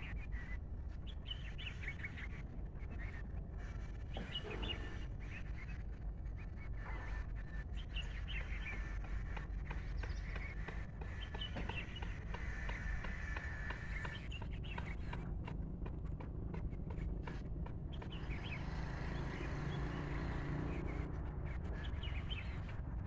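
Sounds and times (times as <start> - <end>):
birds chirping: 0.0 - 15.4, 16.8 - 22.9.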